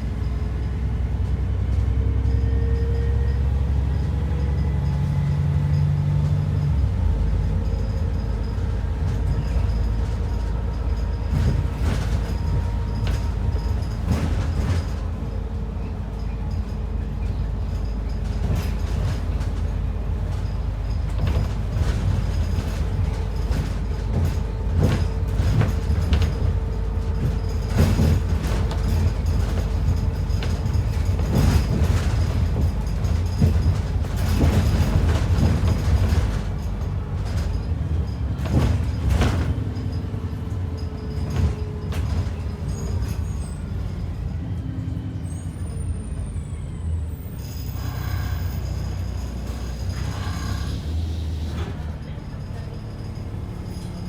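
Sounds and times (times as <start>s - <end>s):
bus body rattling: 0.0s - 54.0s
bus engine and road rumble: 0.0s - 54.0s.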